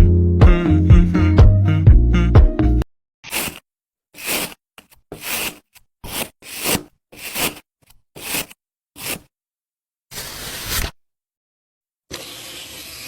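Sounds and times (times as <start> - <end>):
rasping scraping strokes: 3.3 - 3.6, 4.2 - 9.3.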